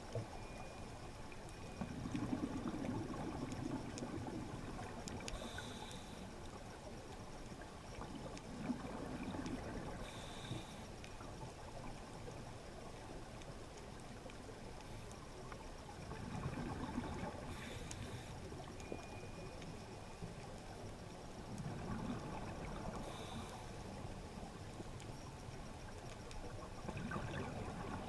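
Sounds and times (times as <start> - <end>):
underwater rushing bubbling water: 1.8 - 5.3, 8.2 - 10.1, 16.0 - 18.3, 21.5 - 23.4, 26.5 - 28.0.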